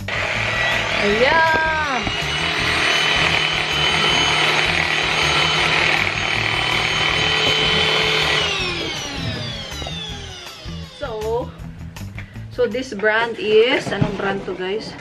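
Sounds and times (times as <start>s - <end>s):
vacuum motor whine: 0.0s - 12.1s.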